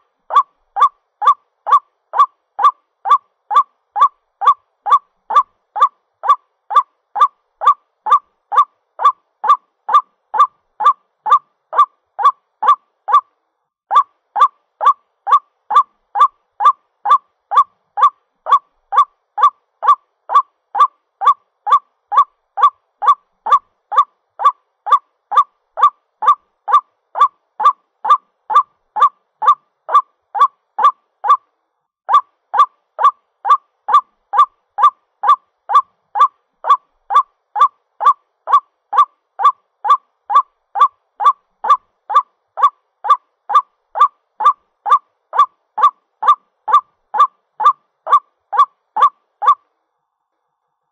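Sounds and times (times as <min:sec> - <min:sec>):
bird harsh repeated call: 0:00.0 - 0:13.3, 0:13.9 - 0:31.4, 0:32.1 - 0:49.6.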